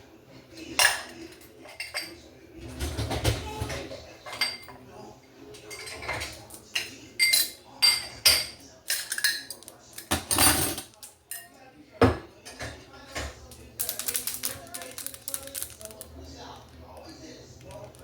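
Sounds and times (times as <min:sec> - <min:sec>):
dishes and cutlery clinking: 0:00.5 - 0:18.0.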